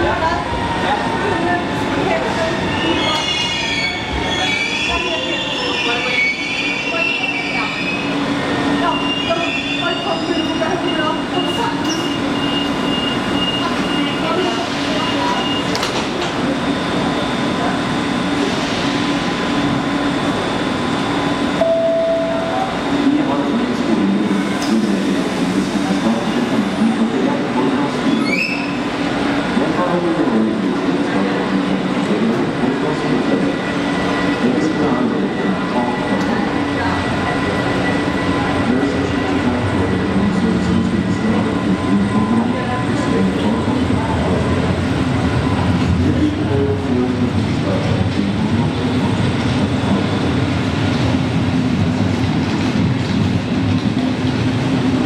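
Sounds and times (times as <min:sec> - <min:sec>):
electric train running hum: 0:06.1 - 0:55.0
short steady tone: 0:21.6 - 0:22.7.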